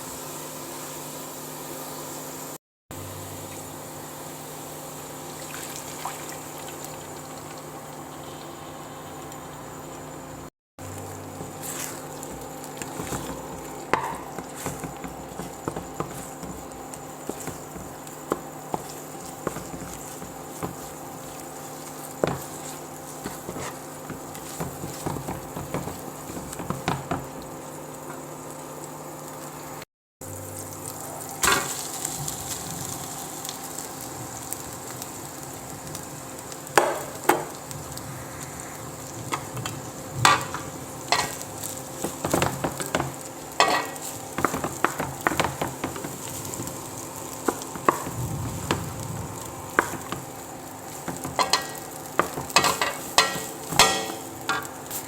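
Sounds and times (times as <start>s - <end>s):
food sizzling in a pan: 0.0s - 55.0s
utensil scraping against pan: 11.4s - 27.4s, 39.3s - 55.0s.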